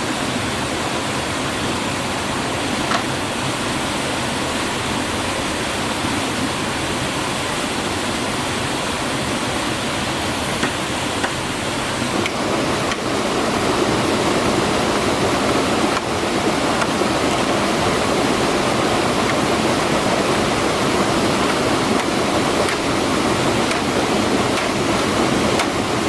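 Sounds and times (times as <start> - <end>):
rushing water roar: 0.0 - 26.0.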